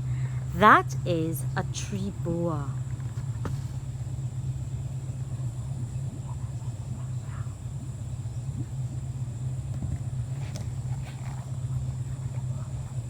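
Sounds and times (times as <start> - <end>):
boat engine idling: 0.0 - 13.0
high drone of insects: 0.0 - 13.0
faint chirps: 3.7 - 13.0.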